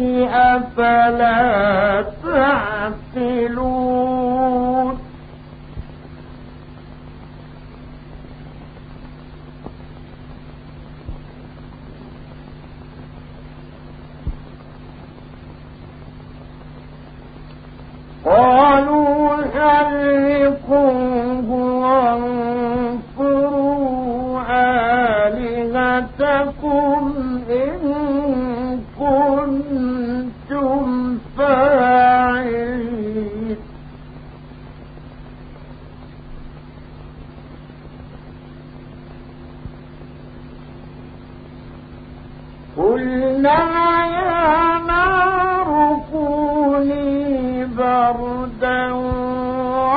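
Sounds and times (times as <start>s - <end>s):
low mains hum: 0.0s - 49.9s
recording hiss: 0.0s - 49.9s
faint click: 16.6s - 17.9s.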